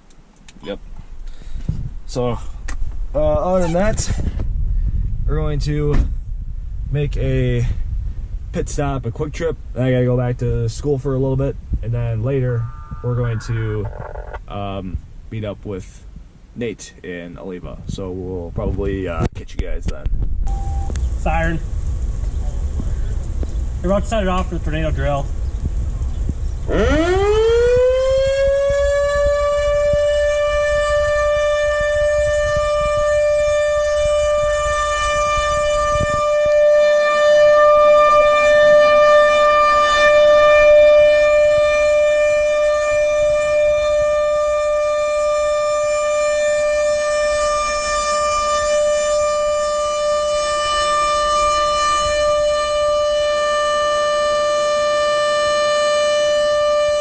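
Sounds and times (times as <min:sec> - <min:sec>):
tornado warning siren: 0:12.2 - 0:14.5, 0:20.5 - 0:57.0.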